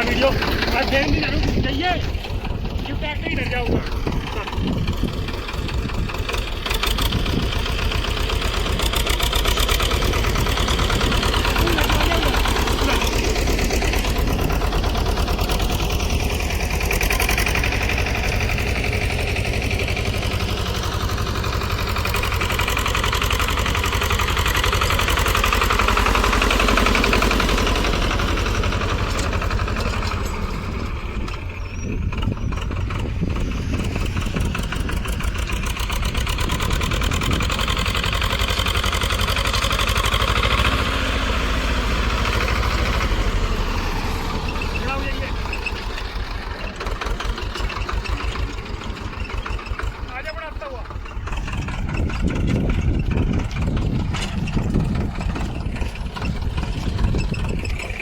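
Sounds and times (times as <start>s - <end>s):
tractor diesel engine at full revs: 0.0s - 58.0s.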